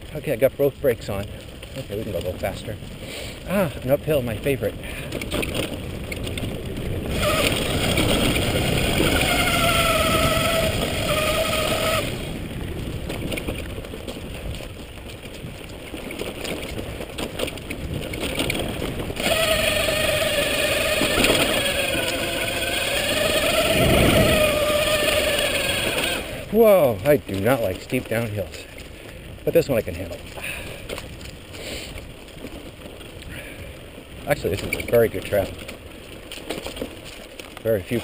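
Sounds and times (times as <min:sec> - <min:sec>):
electric bike motor whining: 0:05.0 - 0:14.1, 0:16.1 - 0:26.6.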